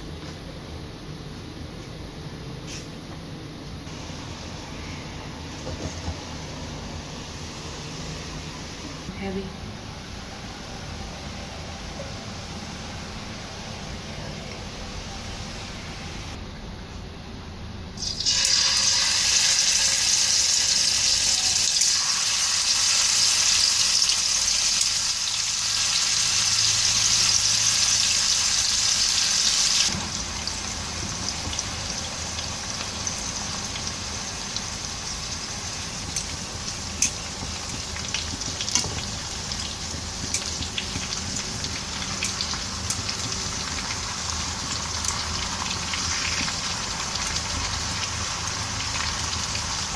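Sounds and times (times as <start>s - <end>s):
meat sizzling in hot oil: 18.0s - 49.9s.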